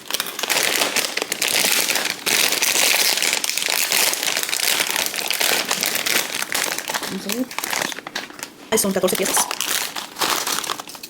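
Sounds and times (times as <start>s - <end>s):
plastic chip bag crinkling: 0.0s - 11.0s.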